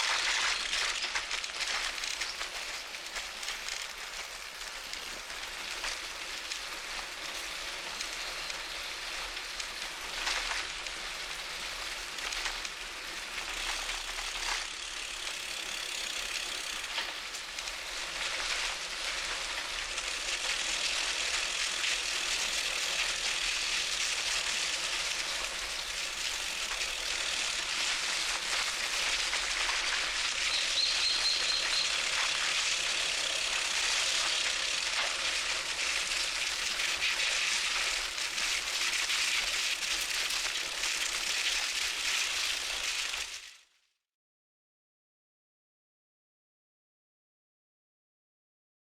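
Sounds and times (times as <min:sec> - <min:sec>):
bicycle tyres rolling and wind: 0:00.0 - 0:43.7
bird trill: 0:30.4 - 0:32.1.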